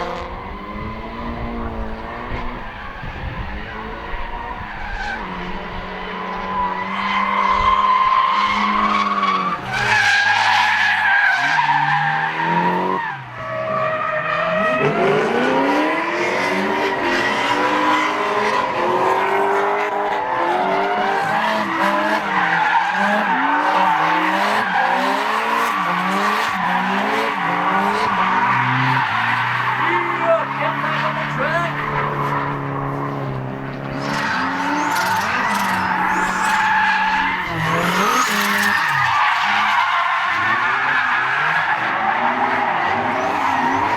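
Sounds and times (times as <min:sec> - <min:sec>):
car engine revving: 0:00.0 - 0:13.1, 0:14.4 - 0:43.9
tyre squeal: 0:33.8 - 0:42.0.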